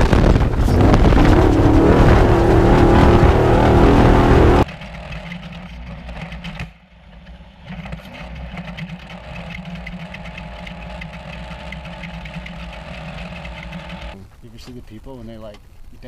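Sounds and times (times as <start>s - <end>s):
truck engine idling: 8.4s - 14.2s.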